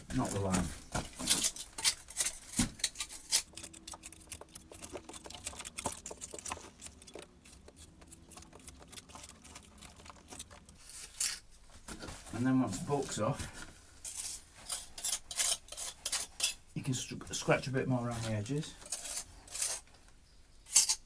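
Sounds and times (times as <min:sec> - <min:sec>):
trowel scraping mortar: 0:03.2 - 0:11.4.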